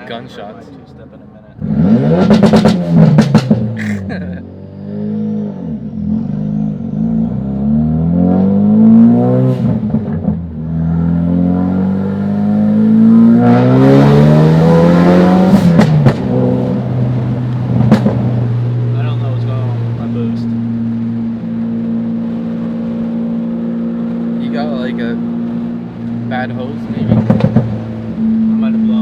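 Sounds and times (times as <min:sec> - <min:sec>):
turbo car engine accelerating: 0:00.0 - 0:29.0
exhaust pops: 0:01.6 - 0:04.1, 0:15.3 - 0:20.5, 0:26.0 - 0:28.9.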